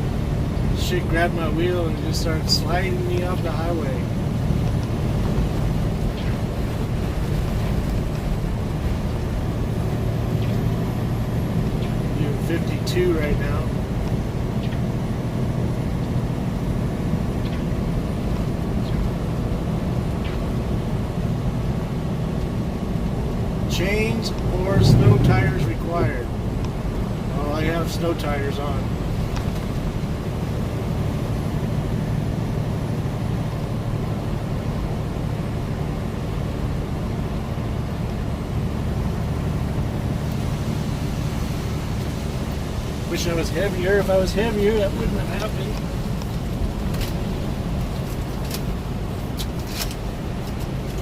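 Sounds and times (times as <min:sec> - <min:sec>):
truck engine and road rumble: 0:00.0 - 0:51.0.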